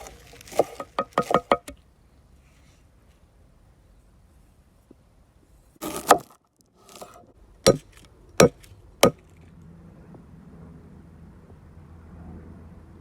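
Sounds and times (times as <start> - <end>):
rustling scrape: 0.0 - 1.6, 2.4 - 3.2, 6.8 - 8.0
sharp wooden knocks: 0.5 - 1.8, 7.7 - 9.2.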